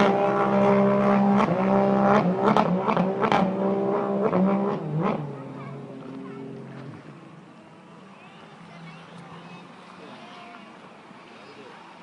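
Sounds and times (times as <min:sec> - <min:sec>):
powerboat engine running hard: 0:00.0 - 0:12.0.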